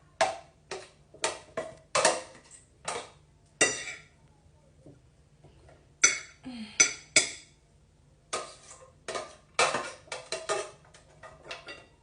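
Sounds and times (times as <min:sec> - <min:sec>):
kitchenware knocking and clattering: 0:00.2 - 0:04.1, 0:06.0 - 0:07.6, 0:08.3 - 0:12.0
kitchenware clinking: 0:00.2 - 0:04.2, 0:06.0 - 0:07.6, 0:08.3 - 0:12.0.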